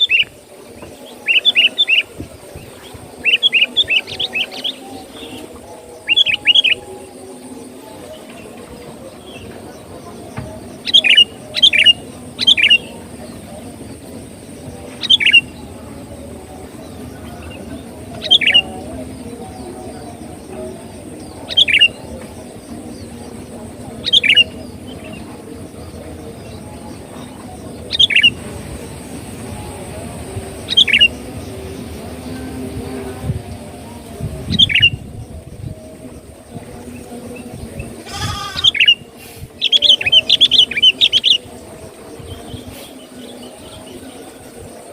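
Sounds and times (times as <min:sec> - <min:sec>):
bulbul calling: 0:10.4 - 0:13.0, 0:17.4 - 0:19.6, 0:24.0 - 0:25.8, 0:27.2 - 0:28.5, 0:30.5 - 0:31.6, 0:38.0 - 0:41.4.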